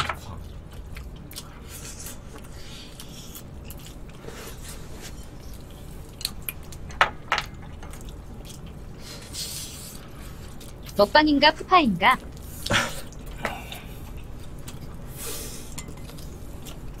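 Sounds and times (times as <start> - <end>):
chewing and lip smacks: 0.2 - 4.2, 5.3 - 6.9, 15.8 - 17.0.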